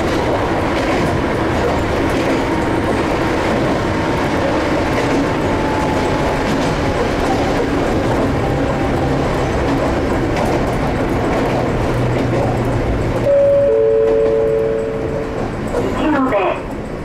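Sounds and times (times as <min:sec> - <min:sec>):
electric train wheel and motor noise: 0:00.0 - 0:17.0
two-note descending chime: 0:13.3 - 0:15.0.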